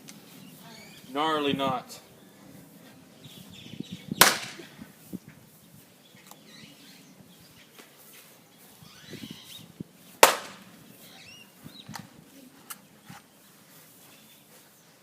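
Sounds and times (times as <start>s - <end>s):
splitting maul cracking log: 10.2s - 10.6s.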